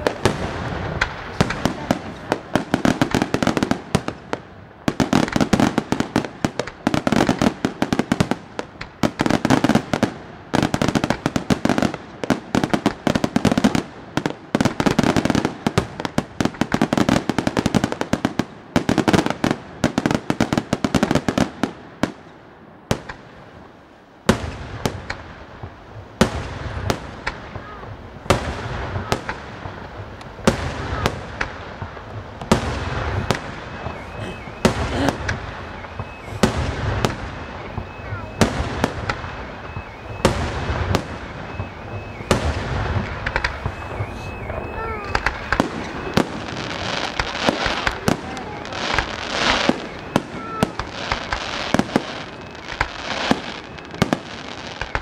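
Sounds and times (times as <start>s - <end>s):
sharp firework reports: 0.0s - 22.2s, 22.8s - 55.0s
fireworks bursting and crackling: 0.0s - 55.0s.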